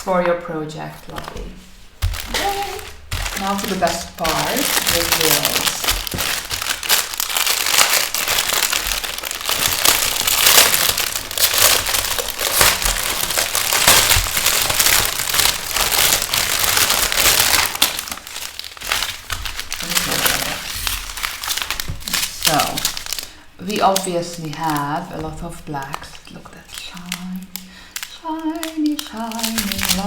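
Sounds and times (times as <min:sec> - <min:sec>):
plastic packets crinkling: 0:00.8 - 0:30.0.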